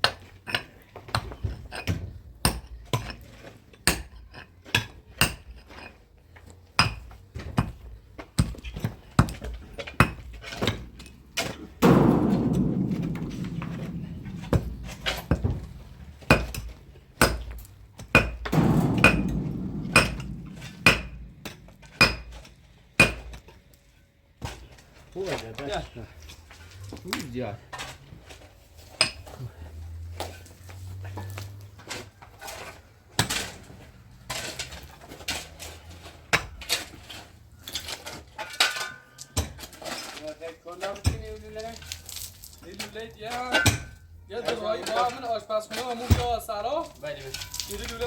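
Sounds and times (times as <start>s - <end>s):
hammer striking steel chisel: 18.2s - 23.4s.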